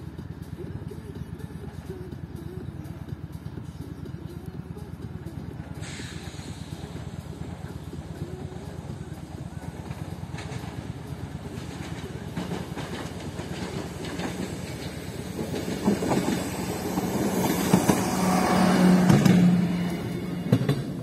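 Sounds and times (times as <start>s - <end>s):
diesel railcar passing: 0.0s - 21.0s
wheel clacks over rail joints: 6.8s - 21.0s.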